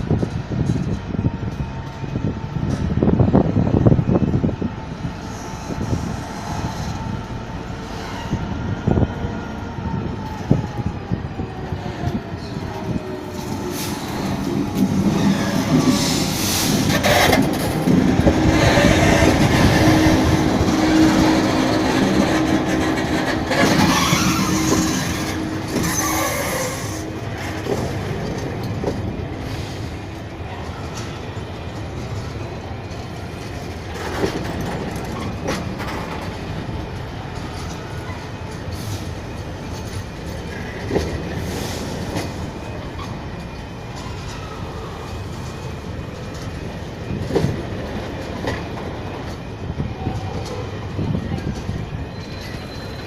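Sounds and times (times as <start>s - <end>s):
train rolling rumble: 0.0s - 53.0s
train wheels squealing: 18.5s - 27.1s, 49.8s - 53.0s.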